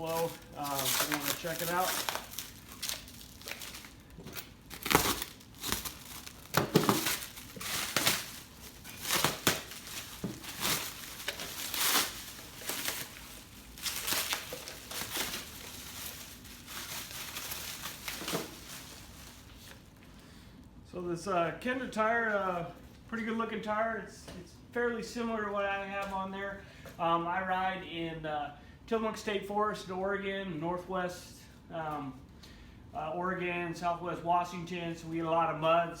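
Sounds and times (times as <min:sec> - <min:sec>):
wrapping crinkling and tearing: 0:00.0 - 0:20.0.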